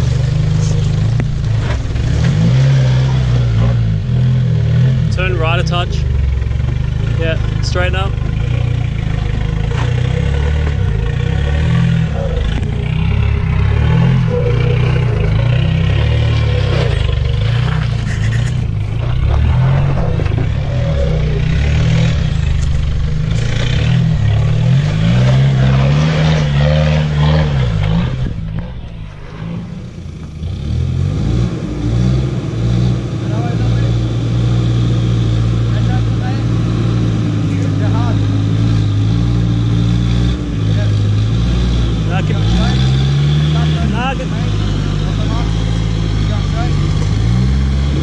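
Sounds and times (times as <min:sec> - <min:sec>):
clattering and scraping: 0:00.0 - 0:02.5, 0:06.5 - 0:30.2
off-road vehicle engine revving: 0:00.0 - 0:48.0.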